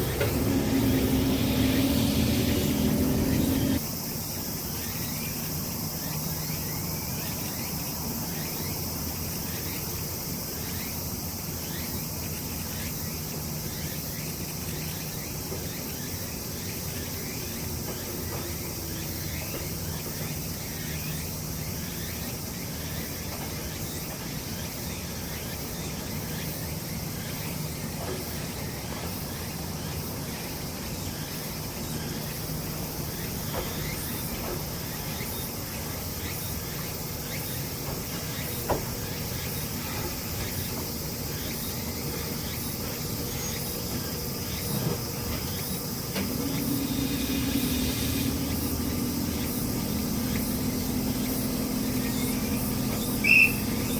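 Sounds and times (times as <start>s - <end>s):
low steady hum: 0.0s - 3.8s, 46.2s - 53.9s
insects buzzing: 0.0s - 53.9s.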